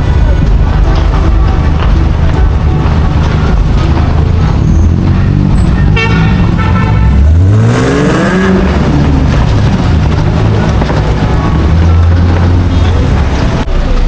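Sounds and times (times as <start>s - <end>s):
vehicle engine revving: 0.0s - 14.0s
car horn toot: 4.7s - 7.8s.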